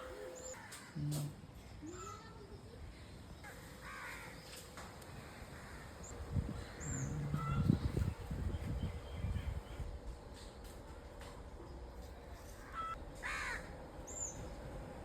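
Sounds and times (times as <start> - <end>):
crow cawing: 3.8 - 4.4, 12.6 - 13.7.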